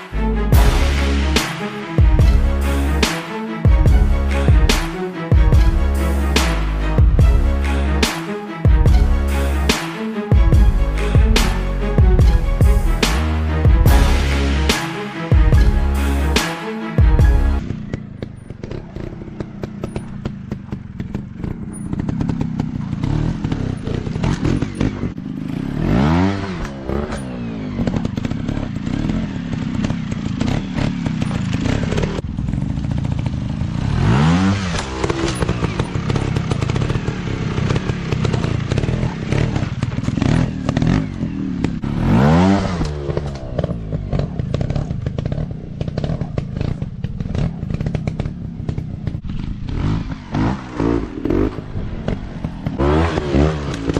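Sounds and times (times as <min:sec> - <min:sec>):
dirt bike engine revving: 0:08.8 - 0:53.9
bike knocks and clatter: 0:17.6 - 0:25.2, 0:34.5 - 0:41.8, 0:42.7 - 0:53.9.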